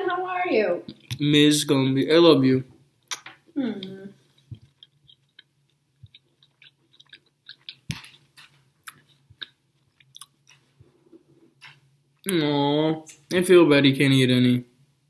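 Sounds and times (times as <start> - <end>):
soft mouth clicks: 3.1 - 10.7
chewing and biting sandwich: 4.3 - 11.8.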